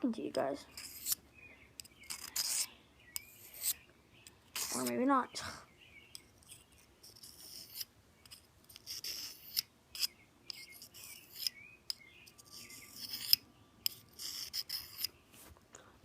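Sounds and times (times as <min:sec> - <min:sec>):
knife scraping on sharpener: 0:00.7 - 0:01.2, 0:01.8 - 0:03.8, 0:04.4 - 0:05.0, 0:06.1 - 0:15.1.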